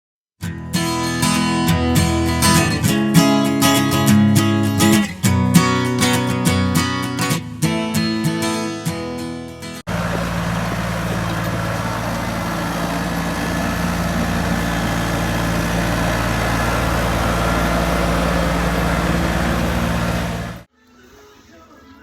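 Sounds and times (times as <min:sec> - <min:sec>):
strummed guitar music: 0:00.4 - 0:20.7
engine idling: 0:09.9 - 0:20.7.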